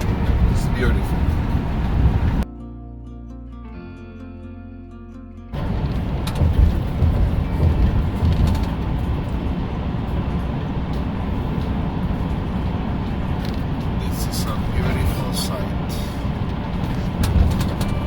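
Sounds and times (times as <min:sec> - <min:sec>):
vehicle road and wind noise: 0:00.0 - 0:02.5, 0:05.5 - 0:18.0
background music: 0:01.0 - 0:08.7.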